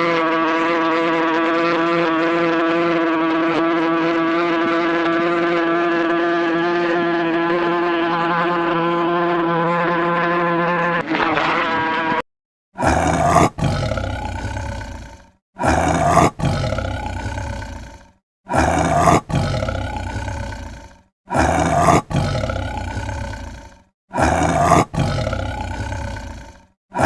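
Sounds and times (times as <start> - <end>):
animal roaring: 12.8 - 27.0.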